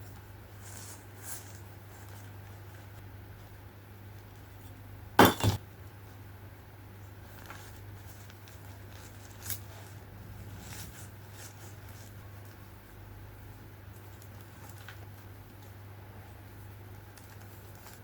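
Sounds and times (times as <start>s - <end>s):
low steady hum: 4.8s - 5.9s
hard objects clinking: 5.2s - 5.6s.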